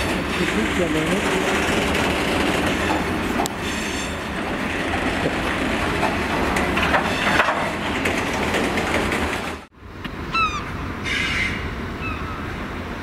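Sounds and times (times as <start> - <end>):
wheels clacking over rail joints: 0.0 - 9.7
freight train wheels rumbling: 0.0 - 13.0.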